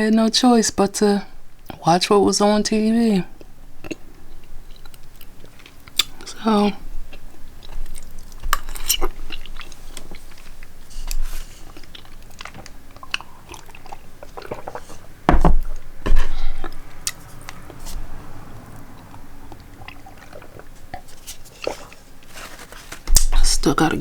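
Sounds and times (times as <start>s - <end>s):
person chewing with mouth smacks: 3.4s - 6.4s, 7.0s - 17.9s, 18.7s - 23.4s.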